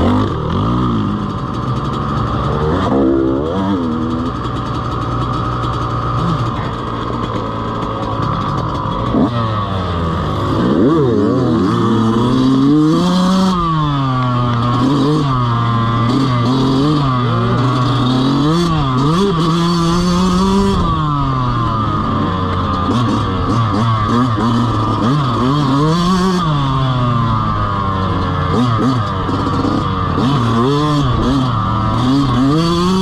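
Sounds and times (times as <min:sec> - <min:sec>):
dirt bike engine revving: 0:00.0 - 0:33.0
steady high whine: 0:00.0 - 0:33.0.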